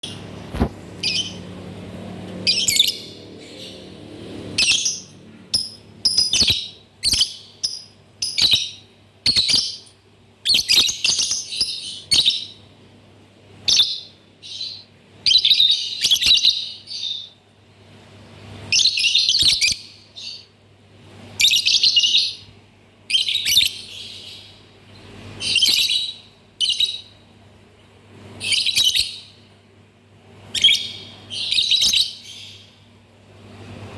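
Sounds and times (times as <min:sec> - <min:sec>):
lovebird chattering: 0:01.0 - 0:01.4, 0:02.5 - 0:03.8, 0:04.6 - 0:12.6, 0:13.7 - 0:17.3, 0:18.7 - 0:20.5, 0:21.4 - 0:22.5, 0:23.1 - 0:24.5, 0:25.4 - 0:27.1, 0:28.4 - 0:29.3, 0:30.5 - 0:32.6.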